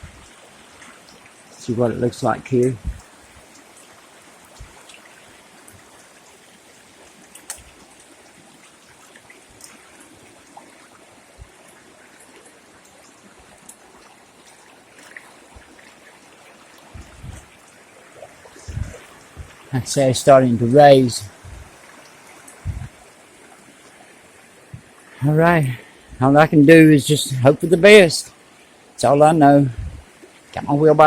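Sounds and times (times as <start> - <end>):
floodwater rushing: 0.0 - 31.0
faint ticks and knocks: 18.6 - 19.7, 21.3 - 23.0, 24.7 - 25.0.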